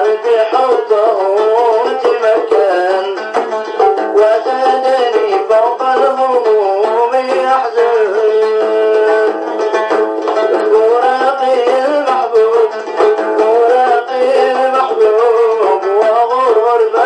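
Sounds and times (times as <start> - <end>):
plucked string instrument melody: 0.0 - 17.0.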